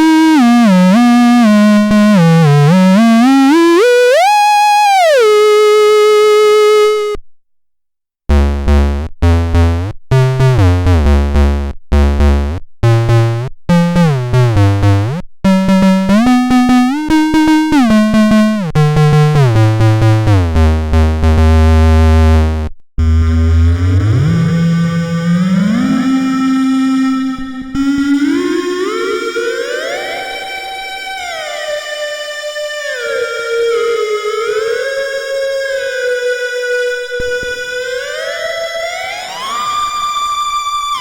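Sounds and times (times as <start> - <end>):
synthesizer gliding tone: 0.2 - 7.2, 23.0 - 30.7
synthesizer short repeated notes: 8.3 - 22.3
deep synth bass: 8.3 - 28.4.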